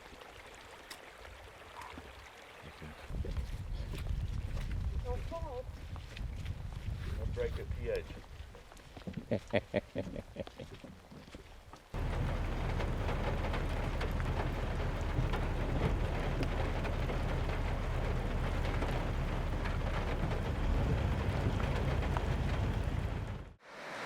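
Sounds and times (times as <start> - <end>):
steady low rumble: 12.0 - 23.6
heavy rain pattering: 12.0 - 24.0.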